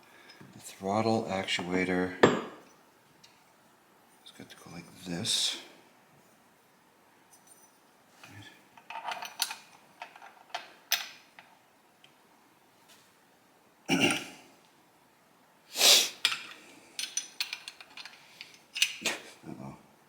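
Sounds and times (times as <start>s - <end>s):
metal parts clattering: 8.8s - 11.1s, 16.3s - 19.0s
small metal parts clicking: 8.8s - 11.5s, 16.2s - 19.0s.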